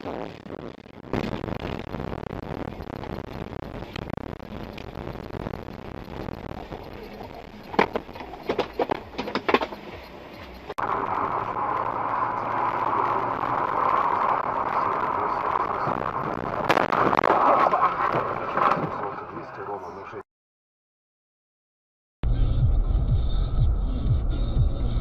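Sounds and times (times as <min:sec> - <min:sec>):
road noise: 0:00.0 - 0:20.2
clatter: 0:05.7 - 0:10.8
steady drone: 0:09.9 - 0:20.0.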